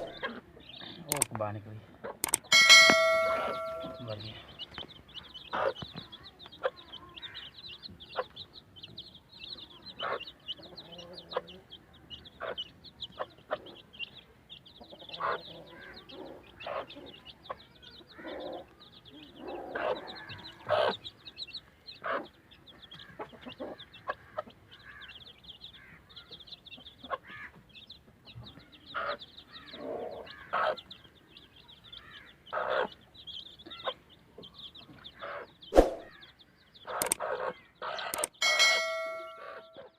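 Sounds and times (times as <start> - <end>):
hen clucking: 0.0 - 7.5, 9.7 - 11.7, 12.3 - 14.0, 14.8 - 21.1, 22.0 - 24.6, 28.9 - 31.0, 32.5 - 33.0
chicks peeping: 0.0 - 39.9.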